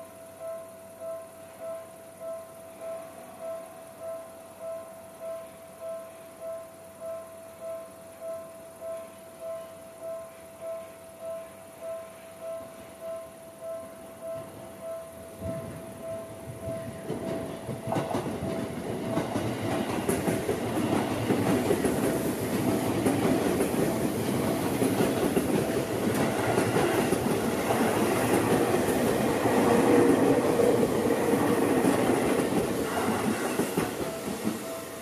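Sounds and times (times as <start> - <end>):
train wheels clattering past: 15.4 - 35.0.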